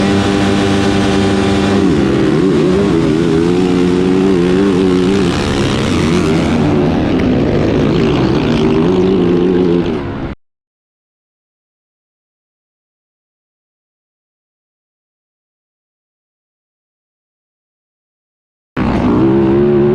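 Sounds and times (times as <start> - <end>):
motocross bike engine revving: 0.0 - 10.3, 18.8 - 19.9.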